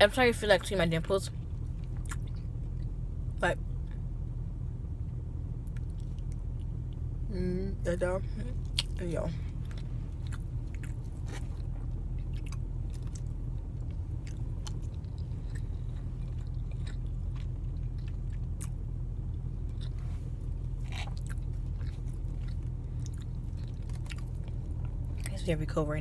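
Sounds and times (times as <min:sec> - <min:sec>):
car cabin rumble: 0:00.0 - 0:26.0
person chewing with wet clicks: 0:01.6 - 0:02.9, 0:05.6 - 0:07.0, 0:08.6 - 0:20.0, 0:20.7 - 0:25.4.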